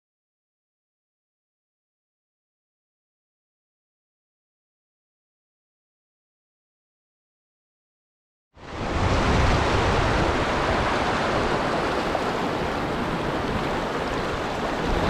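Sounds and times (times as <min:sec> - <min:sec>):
river water rushing over falls: 0:08.6 - 0:15.0.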